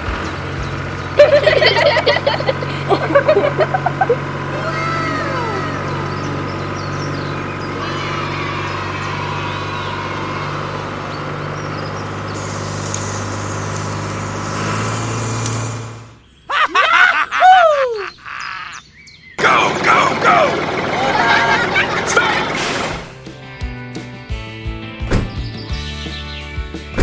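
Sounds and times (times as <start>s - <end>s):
squeaky cartoon sounds: 20.9s - 23.1s.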